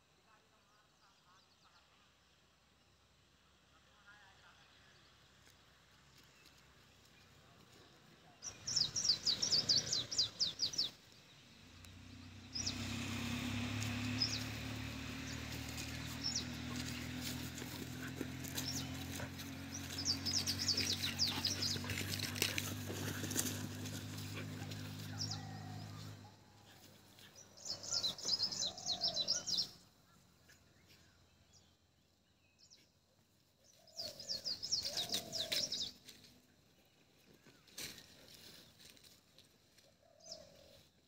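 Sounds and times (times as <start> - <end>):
wild birds chirping: 4.1 - 41.0
low bird calls: 33.7 - 36.0.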